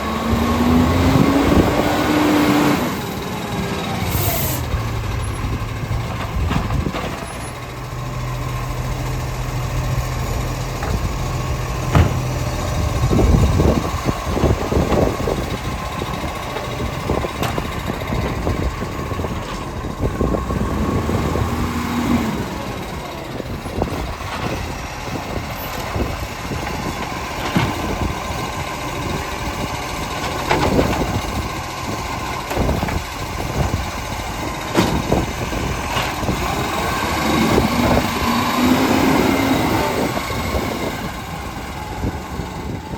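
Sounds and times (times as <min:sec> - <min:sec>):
diesel truck engine running: 0:00.0 - 0:42.9
wind buffeting microphone: 0:00.2 - 0:07.1, 0:10.8 - 0:42.9
clunks and knocks: 0:04.7 - 0:07.6, 0:10.6 - 0:15.5, 0:16.1 - 0:20.4, 0:23.8 - 0:28.3, 0:30.2 - 0:31.4, 0:34.4 - 0:36.6.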